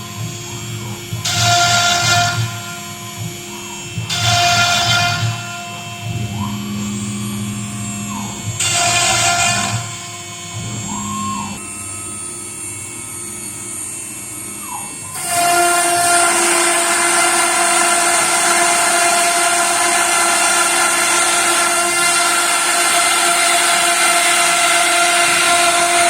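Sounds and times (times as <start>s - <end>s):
hissing cutting noise: 0.0s - 26.0s
router spindle whine: 0.0s - 26.0s.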